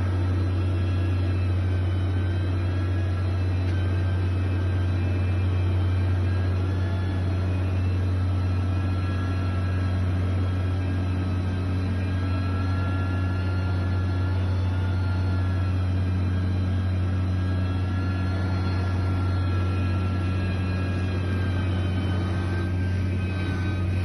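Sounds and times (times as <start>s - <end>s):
diesel engine droning: 0.0s - 24.0s
faint high whine: 0.0s - 24.0s.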